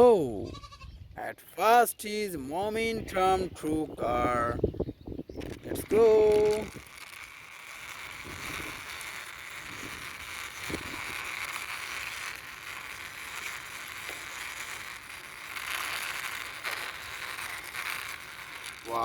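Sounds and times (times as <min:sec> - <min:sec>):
toy vehicle wheels rolling: 0:05.4 - 0:19.0.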